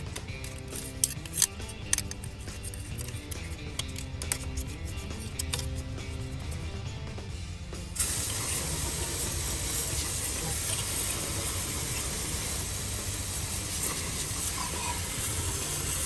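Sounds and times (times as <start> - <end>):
pressure washer spraying metal: 8.0 - 16.0.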